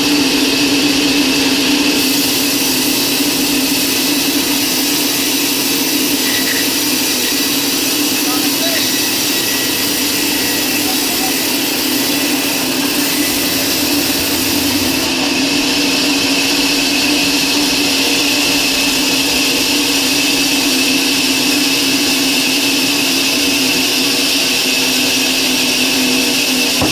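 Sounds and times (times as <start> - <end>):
electric power tool motor running: 0.0 - 16.1.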